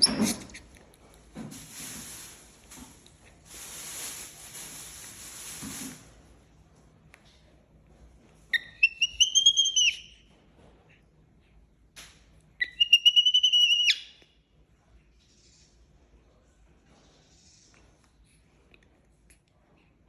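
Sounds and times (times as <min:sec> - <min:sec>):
baby monkey crying: 0:08.6 - 0:10.1, 0:12.6 - 0:14.0.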